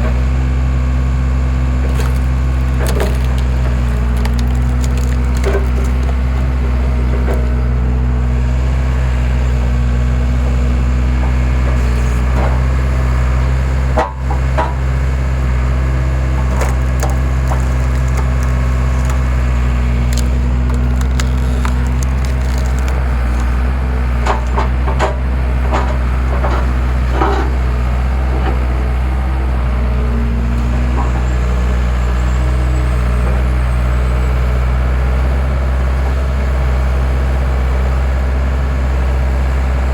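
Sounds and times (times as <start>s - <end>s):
skid steer engine running: 0.0s - 39.9s
logs cracking and splintering: 1.4s - 7.8s, 10.2s - 29.3s.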